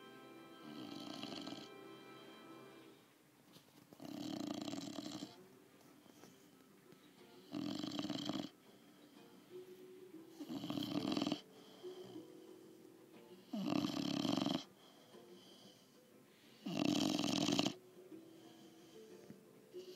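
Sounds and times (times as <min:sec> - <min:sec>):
dog snoring: 0:00.6 - 0:01.8, 0:03.9 - 0:05.4, 0:07.4 - 0:08.6, 0:10.3 - 0:12.2, 0:13.3 - 0:15.9, 0:16.6 - 0:17.8
dog breathing: 0:03.9 - 0:06.6, 0:07.3 - 0:09.6, 0:10.3 - 0:19.9.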